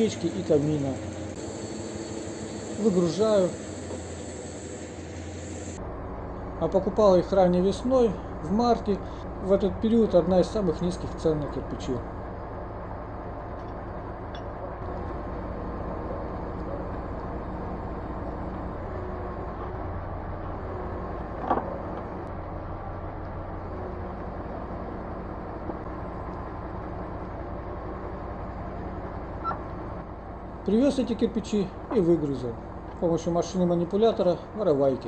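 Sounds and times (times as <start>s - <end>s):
crane truck engine running: 0.0s - 13.1s, 30.6s - 35.0s.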